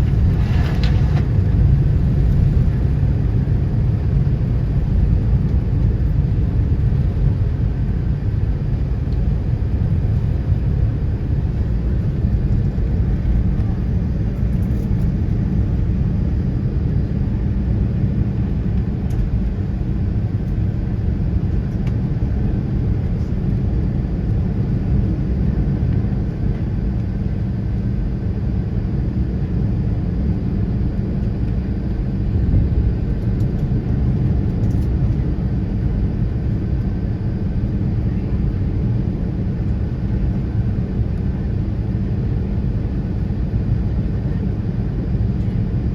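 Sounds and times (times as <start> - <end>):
jet engines rumbling: 0.0 - 29.0.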